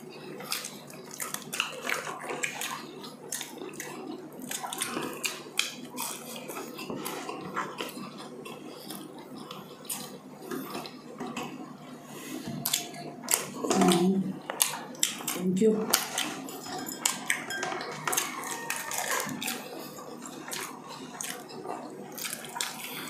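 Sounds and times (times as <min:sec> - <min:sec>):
chewing and mouth clicks: 0:00.0 - 0:23.0
plates and cutlery clinking: 0:16.0 - 0:20.0.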